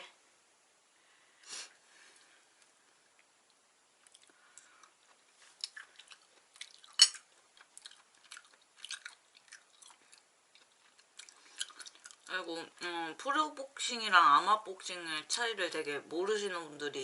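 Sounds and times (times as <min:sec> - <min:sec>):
chewing with wet clicks: 0:03.2 - 0:12.3.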